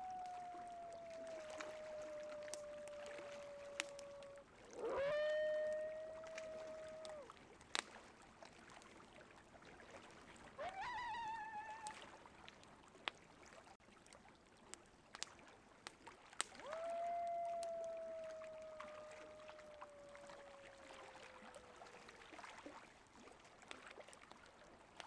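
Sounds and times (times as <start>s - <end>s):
coyotes howling: 0.0s - 7.3s, 10.6s - 12.0s, 16.6s - 22.3s
crackling wood fire: 0.0s - 8.0s.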